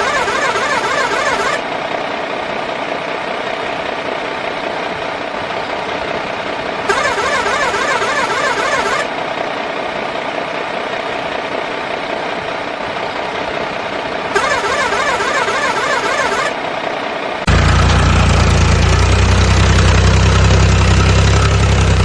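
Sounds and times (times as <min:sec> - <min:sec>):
toy truck motor whine: 0:00.0 - 0:01.6, 0:06.9 - 0:09.1, 0:14.4 - 0:16.6
warbling high tone: 0:00.0 - 0:01.6, 0:06.9 - 0:09.1, 0:14.4 - 0:16.6
deep engine-like running sound: 0:00.0 - 0:22.0.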